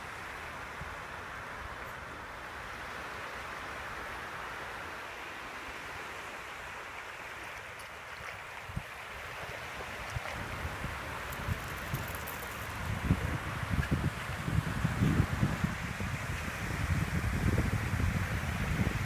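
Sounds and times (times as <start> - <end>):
waves on a sandy beach: 0.0 - 19.0
wind on microphone: 8.6 - 19.0.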